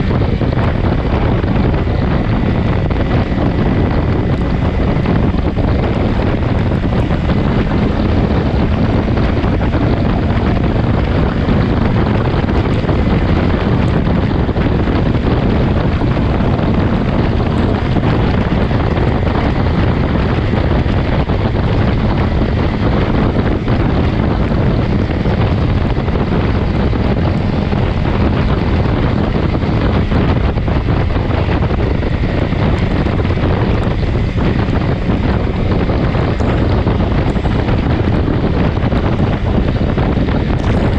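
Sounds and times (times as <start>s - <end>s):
motorcycle engine humming: 0.0s - 40.9s
wind buffeting microphone: 0.0s - 40.9s.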